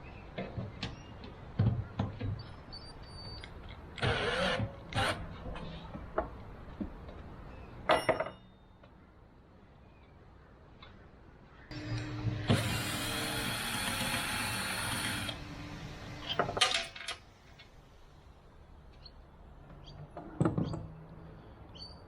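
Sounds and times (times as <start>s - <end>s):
metal tools knocking and clinking: 7.9s - 8.5s.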